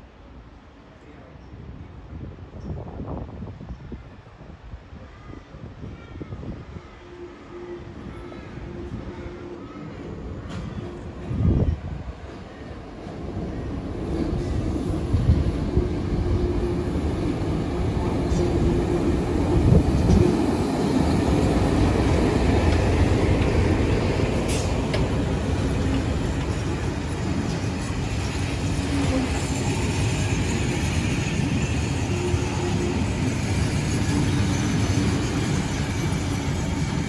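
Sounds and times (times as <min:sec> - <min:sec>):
diesel locomotive engine: 0:06.6 - 0:37.0
train wheels rumbling on rails: 0:09.8 - 0:37.0.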